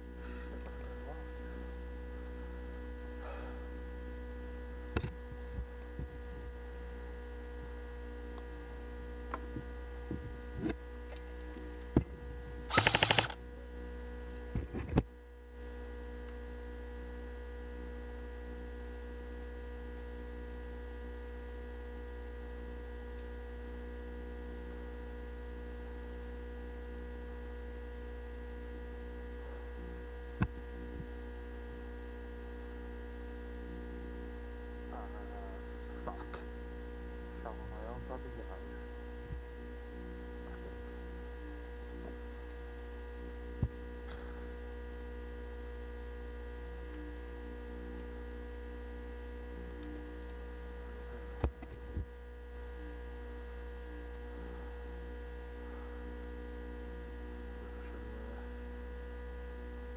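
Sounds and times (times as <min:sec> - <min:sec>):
electrical hum: 0:00.0 - 0:59.9
airsoft gun rapid burst: 0:12.7 - 0:13.4.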